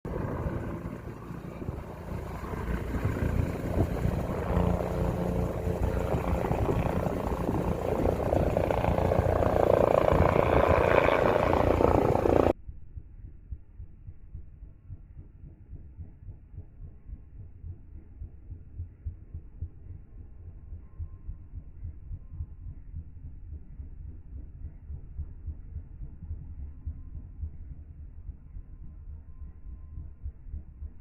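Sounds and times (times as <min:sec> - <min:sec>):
helicopter rotor and turbine: 0:00.0 - 0:12.6
faint low throbbing: 0:00.1 - 0:31.0.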